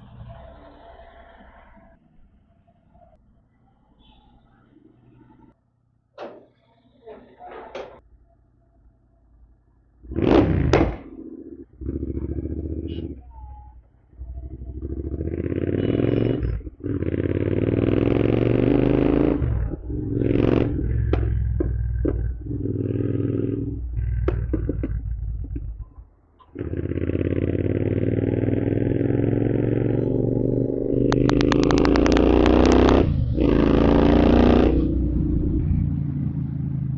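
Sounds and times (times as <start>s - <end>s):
motorcycle engine revving: 10.0s - 36.9s
exhaust pops and bangs: 10.2s - 11.1s, 20.2s - 25.8s, 31.1s - 34.4s.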